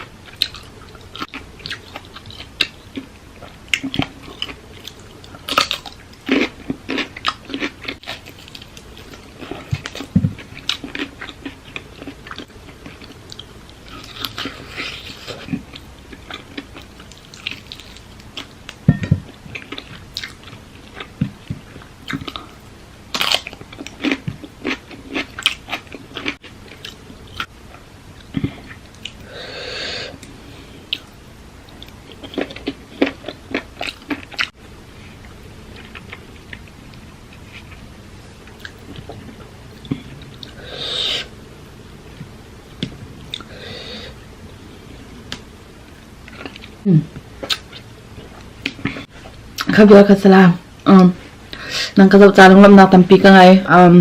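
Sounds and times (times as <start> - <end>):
chewing and crunching food: 0.2 - 29.2, 30.1 - 40.6, 45.0 - 49.8
airy breath noises: 29.2 - 30.9, 43.5 - 44.2.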